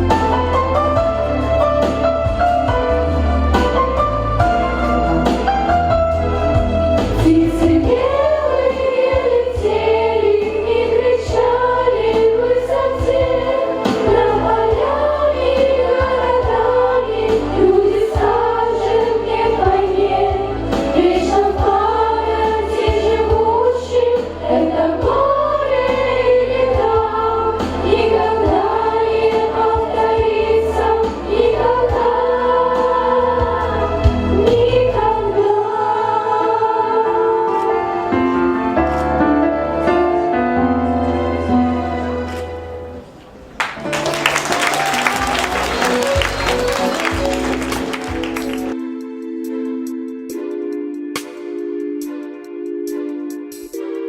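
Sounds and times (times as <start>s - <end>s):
choir singing wordless melody: 7.0s - 39.0s.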